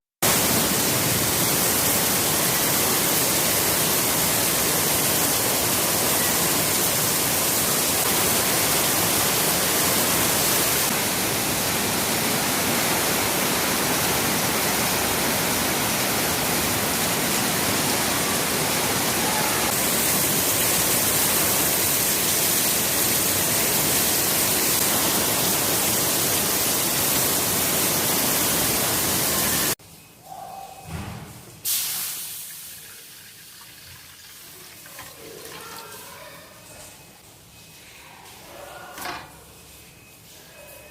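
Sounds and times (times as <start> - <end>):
heavy rain pouring: 0.2 - 29.8.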